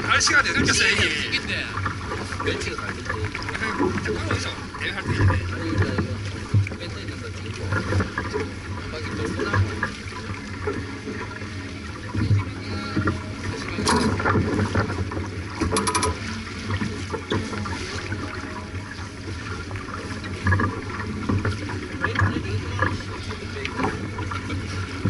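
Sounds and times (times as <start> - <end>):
water splashing along hull: 0.0 - 25.0
wind: 0.0 - 25.0.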